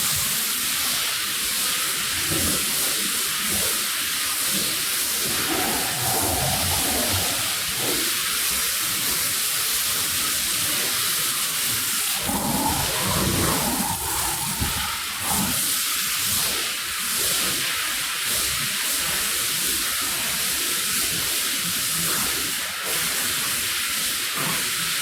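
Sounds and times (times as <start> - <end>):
water spraying onto a rug: 0.0 - 17.7.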